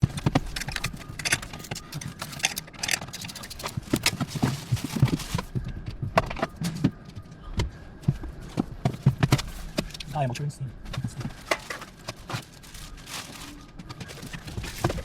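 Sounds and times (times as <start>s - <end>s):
metallic clicks and knocks of tools: 0.2s - 4.2s.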